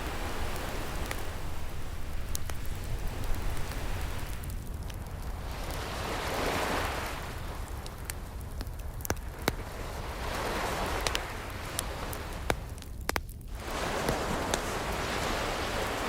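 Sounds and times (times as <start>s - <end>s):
ocean waves washing in: 0.0s - 12.8s, 13.5s - 16.0s
wood fire crackling: 0.0s - 16.0s.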